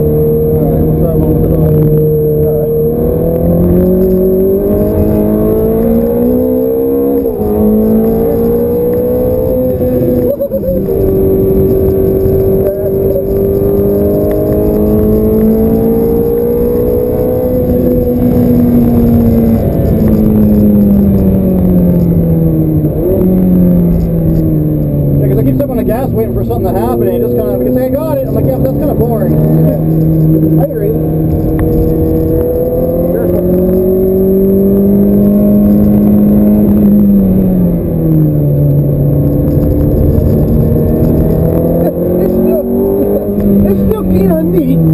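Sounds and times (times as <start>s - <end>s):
engine rev blip: 0.0s - 24.6s
car engine accelerating: 0.0s - 44.9s.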